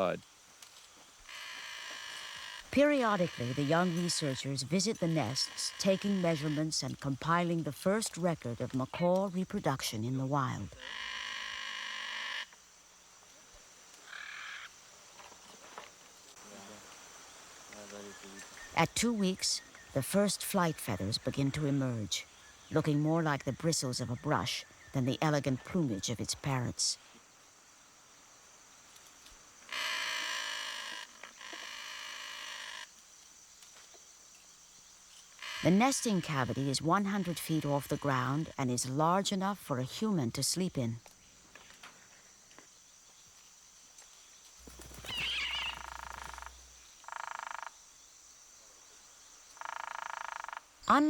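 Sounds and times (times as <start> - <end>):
faint insect hum: 0.0 - 51.0
animal buzzing trills: 1.2 - 6.9, 29.7 - 32.9, 35.4 - 38.6, 44.6 - 47.7
macaw chick calling harshly: 45.0 - 46.5.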